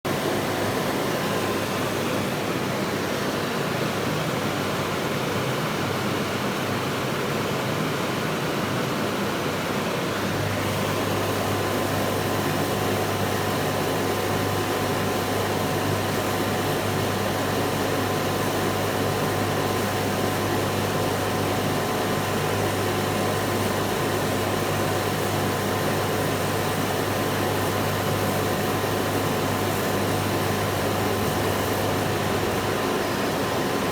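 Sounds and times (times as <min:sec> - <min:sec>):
laser cutter machine whir: 0:09.5 - 0:33.9.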